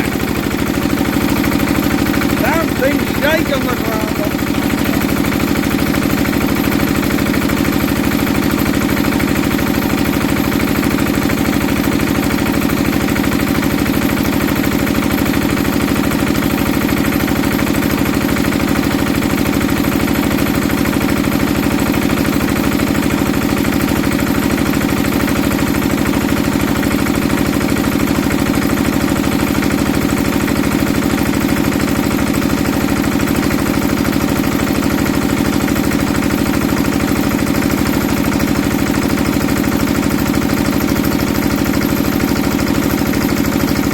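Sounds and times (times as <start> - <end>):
diesel engine running: 0.0 - 9.1.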